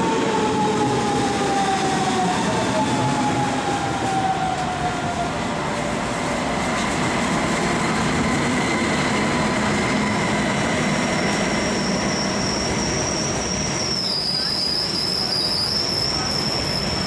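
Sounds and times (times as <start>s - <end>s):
train rolling rumble: 0.0s - 17.0s
high-pitched wheel squeal: 11.1s - 17.0s.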